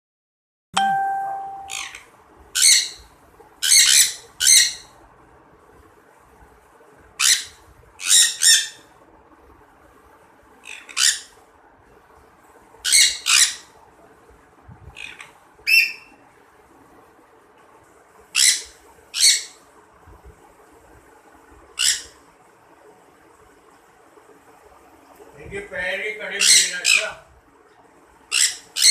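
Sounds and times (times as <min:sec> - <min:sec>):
birds squawking: 0:26.4 - 0:27.2, 0:28.3 - 0:28.9.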